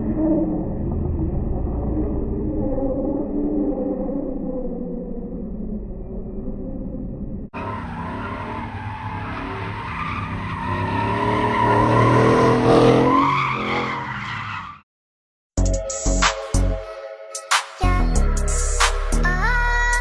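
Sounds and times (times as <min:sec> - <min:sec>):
truck engine revving: 0:07.6 - 0:14.7
tyres squealing and skidding: 0:07.6 - 0:14.9.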